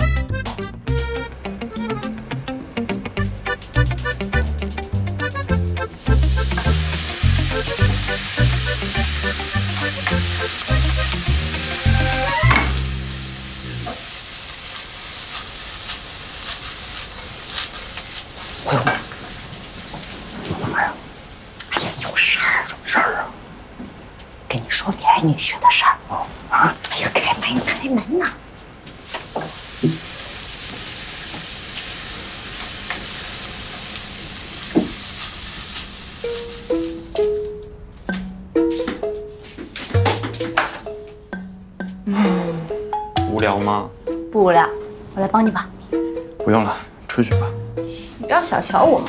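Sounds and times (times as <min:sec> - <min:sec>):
food sizzling in a pan: 0:03.2 - 0:21.6, 0:28.8 - 0:37.5.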